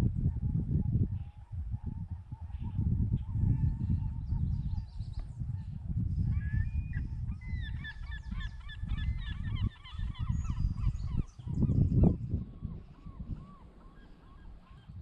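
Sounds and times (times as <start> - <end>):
wind rumble on microphone: 0.0 - 15.0
flock of birds calling: 7.4 - 15.0.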